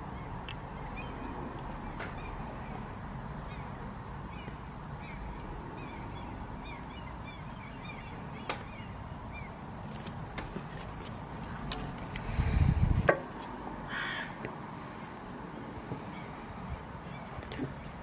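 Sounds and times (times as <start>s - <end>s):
bird calling: 0.0s - 12.6s, 13.9s - 15.2s
background noise: 0.0s - 18.0s.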